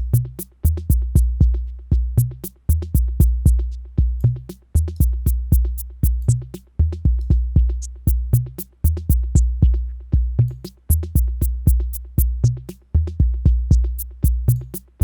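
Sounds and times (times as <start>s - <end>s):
high maraca ticks: 0.0s - 1.0s, 2.4s - 10.0s, 10.6s - 12.8s, 14.0s - 15.0s
booming overdriven kick drum: 0.0s - 4.4s, 5.0s - 6.4s, 7.0s - 10.5s, 11.1s - 12.6s, 13.2s - 14.6s.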